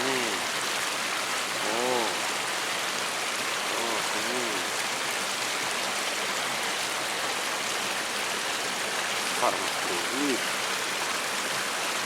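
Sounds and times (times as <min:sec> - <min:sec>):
man calling out: 0:00.0 - 0:00.5, 0:01.6 - 0:02.2, 0:03.7 - 0:04.7, 0:09.4 - 0:10.5
stream water rushing: 0:00.0 - 0:12.0.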